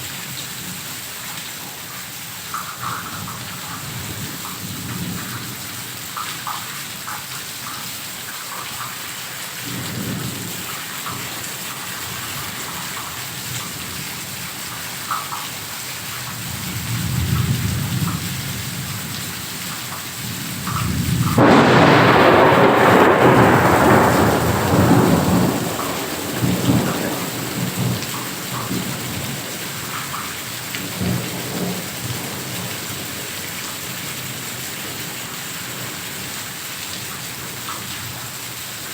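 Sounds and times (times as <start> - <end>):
heavy rain falling: 0.0 - 38.9
thunder rumbling: 20.6 - 30.2
loud thunder clap: 20.8 - 29.5.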